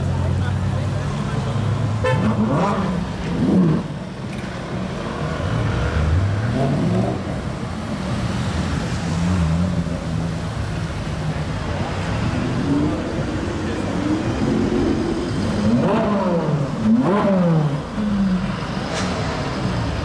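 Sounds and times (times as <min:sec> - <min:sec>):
car engines revving: 0:00.0 - 0:20.0.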